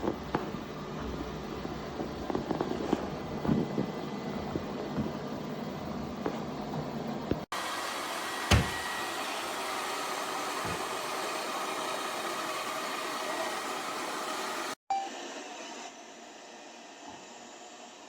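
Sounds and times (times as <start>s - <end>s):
robot vacuum whirring hiss: 7.6s - 14.8s.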